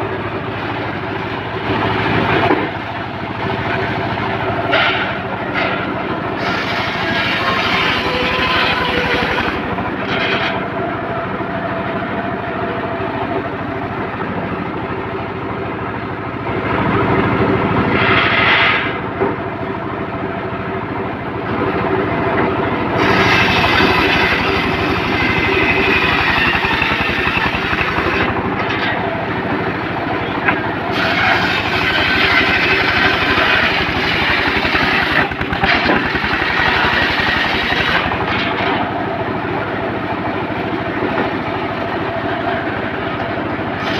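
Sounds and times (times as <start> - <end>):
sawmill engine drone: 0.0 - 43.9
saw blade cutting wood: 4.6 - 10.6, 17.9 - 19.0, 23.0 - 29.1, 30.5 - 38.9.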